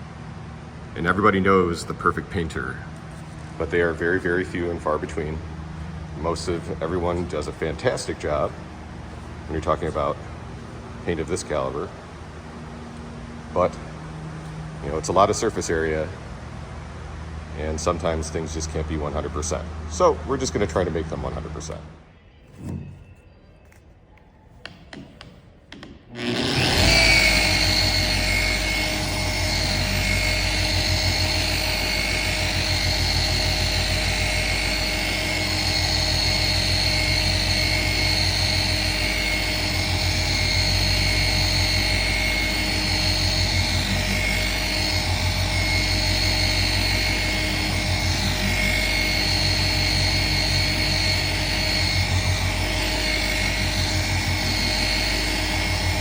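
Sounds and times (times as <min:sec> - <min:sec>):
power tool whining: 0:26.1 - 0:56.0.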